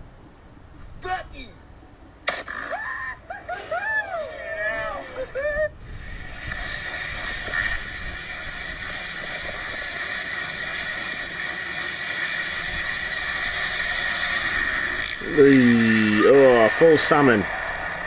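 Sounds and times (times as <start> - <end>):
wind noise on microphone: 0.0 - 1.8, 4.1 - 11.4, 12.5 - 16.4
dirt bike engine running: 5.8 - 18.0.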